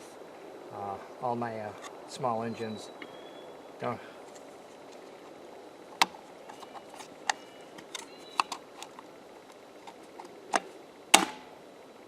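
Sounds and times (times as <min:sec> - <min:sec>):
plastic parts clicking: 0:06.0 - 0:10.7.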